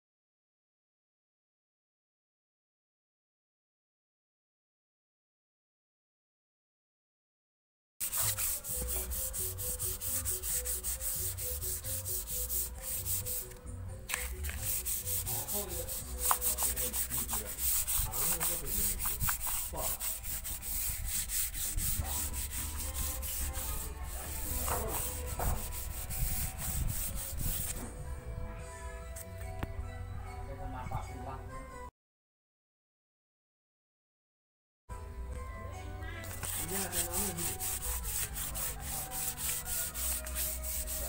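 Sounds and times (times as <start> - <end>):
sandpaper rubbing on wood: 8.0 - 27.8, 36.2 - 41.0.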